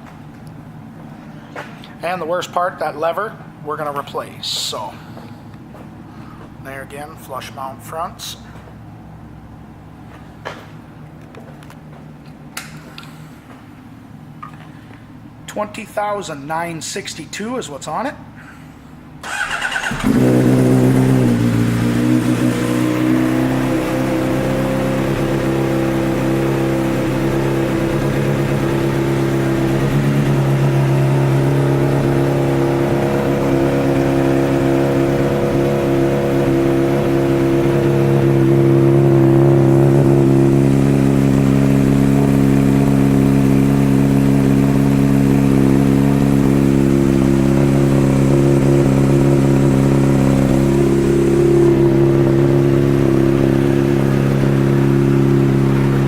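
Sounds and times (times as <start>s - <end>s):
motorcycle engine idling: 19.3s - 56.0s.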